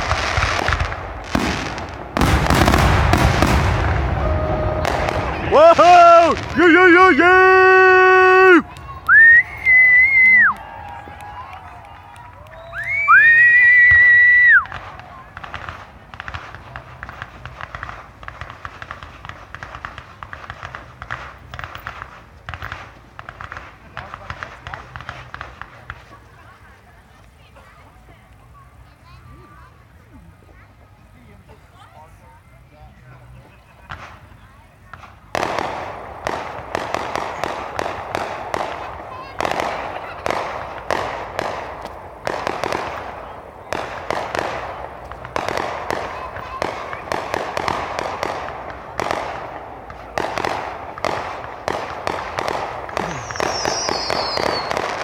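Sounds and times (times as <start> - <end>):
crackling fireworks: 0.0 - 55.0.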